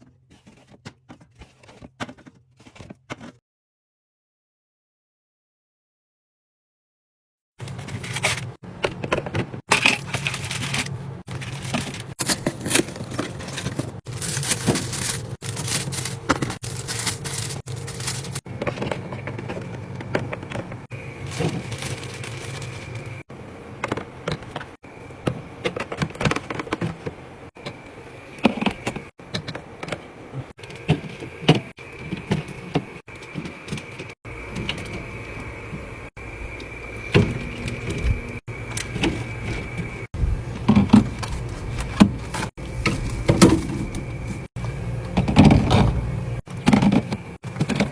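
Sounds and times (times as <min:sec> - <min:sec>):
plastic containers clicking and rattling: 0:07.6 - 0:23.2, 0:40.6 - 0:44.5, 0:46.5 - 0:47.9.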